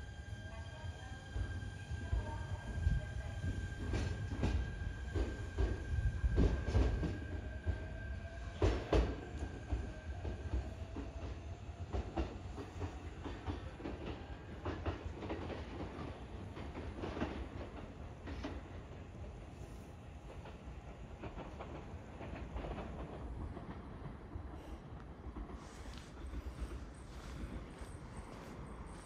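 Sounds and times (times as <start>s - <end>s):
train rumble: 0.0s - 29.0s
electric train whine: 21.0s - 29.0s.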